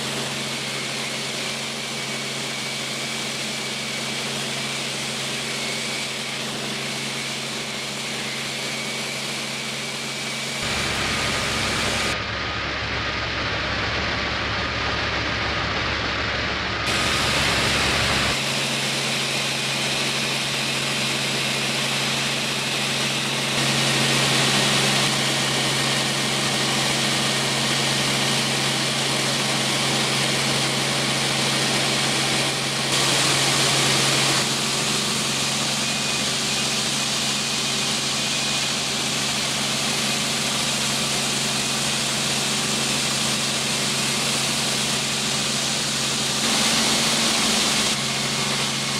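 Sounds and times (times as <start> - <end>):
helicopter engine and rotor hum: 0.0 - 48.9
loud hiss: 6.9 - 12.2, 16.9 - 18.8, 31.4 - 48.9.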